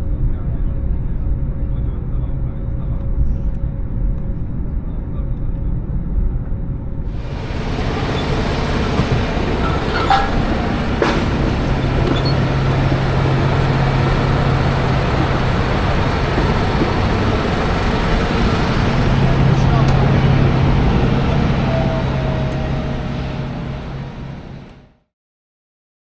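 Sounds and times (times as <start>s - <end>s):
low hum: 6.9s - 25.0s
vehicle engine rumble: 7.1s - 25.0s.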